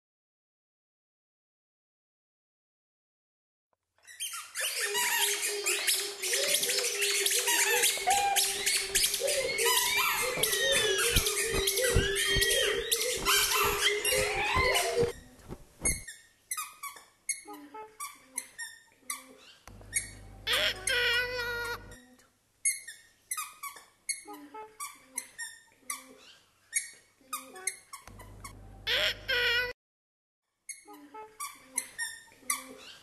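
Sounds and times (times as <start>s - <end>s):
birds calling: 4.4s - 16.0s.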